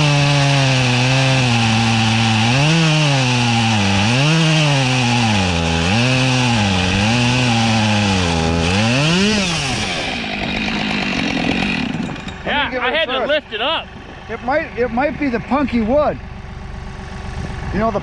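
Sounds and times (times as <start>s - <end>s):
chainsaw cutting through log: 0.0s - 12.5s.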